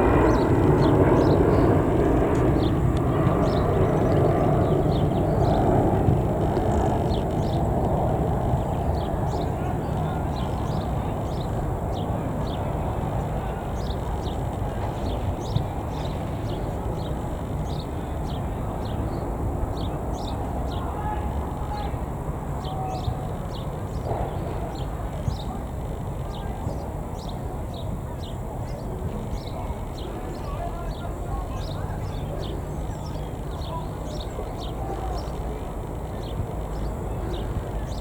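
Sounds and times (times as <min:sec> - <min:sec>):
small birds chirping: 0:00.0 - 0:21.9, 0:22.6 - 0:38.0
steady low rumble: 0:00.0 - 0:38.0.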